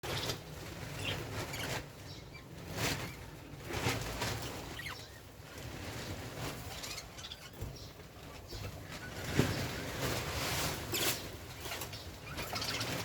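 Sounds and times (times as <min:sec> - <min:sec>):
faint bird chirp: 0:00.0 - 0:10.0, 0:11.0 - 0:13.0.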